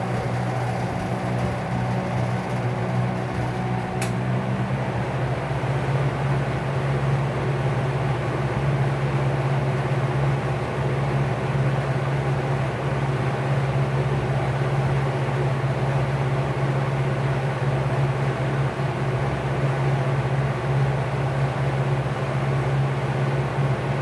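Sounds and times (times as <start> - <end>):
fan motor humming: 0.0 - 7.2.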